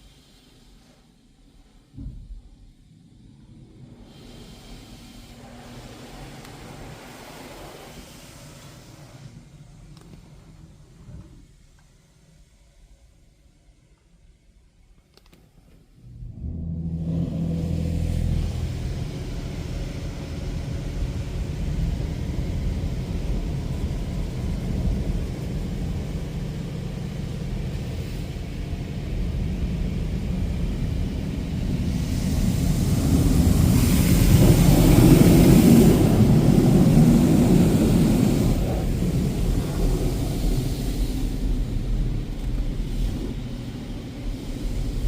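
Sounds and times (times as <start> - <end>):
car wash pumps and motors: 0.0 - 45.0
water spray hissing on car: 3.8 - 11.0, 17.1 - 45.0.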